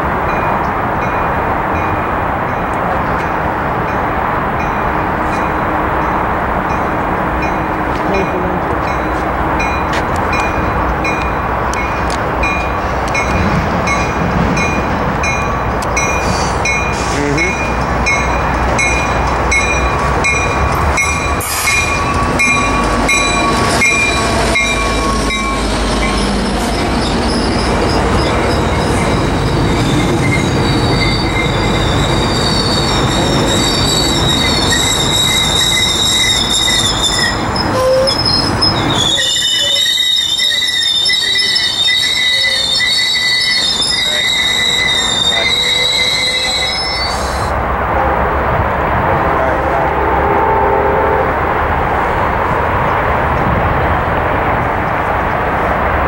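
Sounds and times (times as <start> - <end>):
train wheels rumbling on rail: 0.0 - 56.0
high wheel squeal: 21.0 - 47.5.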